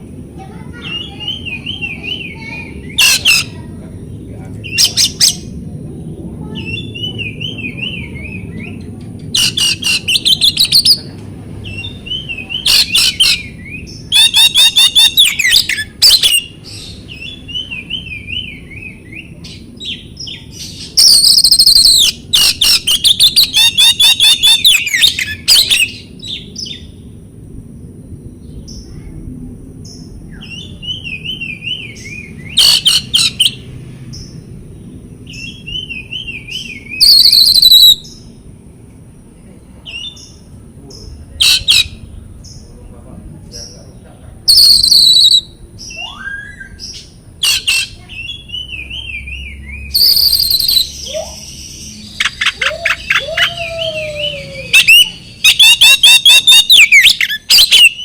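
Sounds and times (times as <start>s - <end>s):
bird harsh chattering: 0.6s - 3.7s, 4.6s - 5.6s, 9.3s - 11.1s, 11.7s - 17.8s, 19.9s - 26.0s, 32.5s - 33.7s, 36.6s - 38.2s, 41.4s - 42.1s, 44.5s - 49.2s, 50.0s - 53.6s, 54.7s - 58.0s
bird whistled phrases: 0.8s - 3.6s, 4.6s - 5.5s, 6.5s - 8.8s, 9.4s - 26.8s, 30.3s - 33.6s, 35.3s - 38.2s, 41.4s - 42.0s, 44.5s - 58.0s.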